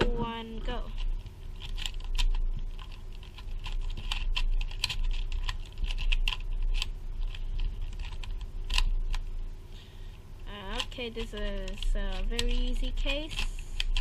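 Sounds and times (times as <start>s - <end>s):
puzzle cube plastic clicks: 1.6s - 9.2s, 10.7s - 14.0s.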